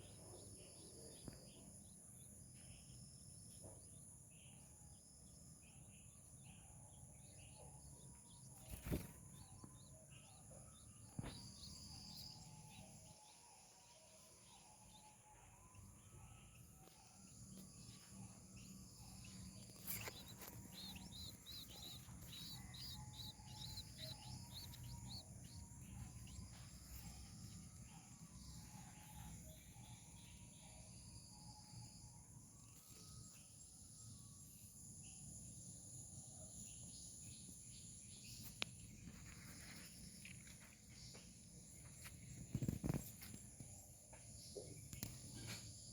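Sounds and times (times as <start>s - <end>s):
high insect drone: 11.5s - 36.1s
birds calling: 18.6s - 30.4s.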